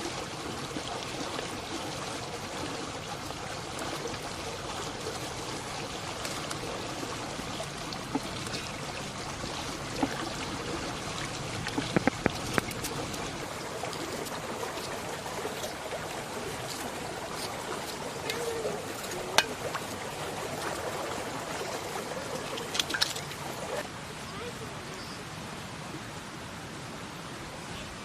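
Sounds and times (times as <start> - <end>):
water flowing: 0.0 - 28.0
sharp knocks: 11.8 - 12.8.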